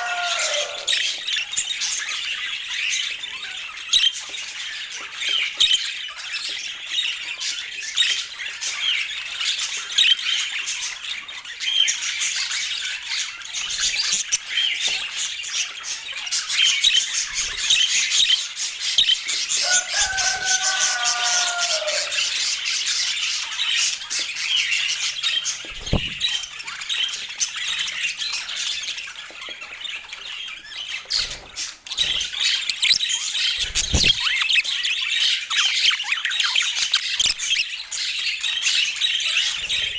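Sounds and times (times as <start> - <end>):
budgerigars chattering: 25.7 - 26.4
low thumps: 25.7 - 26.4.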